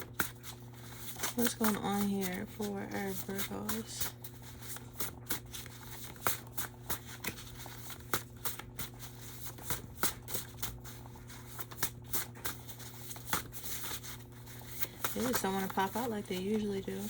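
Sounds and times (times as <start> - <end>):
cards being shuffled: 0.0 - 17.0
steady low hum: 0.0 - 17.0.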